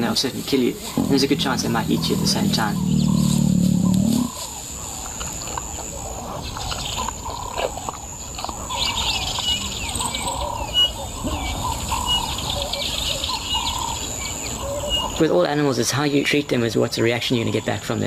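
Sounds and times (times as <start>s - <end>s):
steady outdoor hiss: 0.0s - 18.0s
wild birds calling and chirping: 0.0s - 18.0s
low drone: 0.9s - 4.4s.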